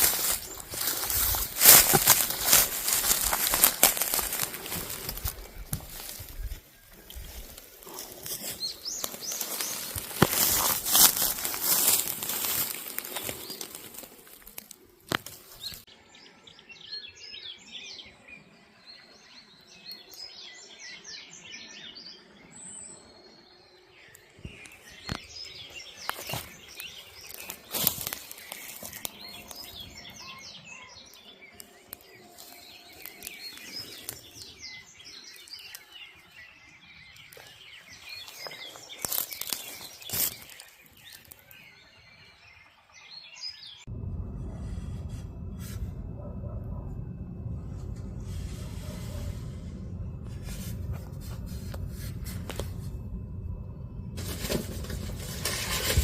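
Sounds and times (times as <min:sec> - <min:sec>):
loud rustling crinkling noise: 0:00.0 - 0:15.9, 0:26.0 - 0:30.0, 0:31.6 - 0:34.5, 0:37.2 - 0:41.6, 0:54.1 - 0:56.0
small birds chirping: 0:00.0 - 0:43.9.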